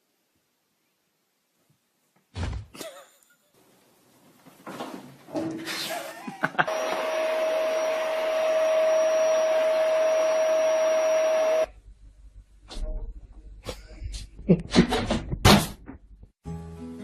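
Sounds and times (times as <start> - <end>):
small electric motor whining: 6.7 - 11.7.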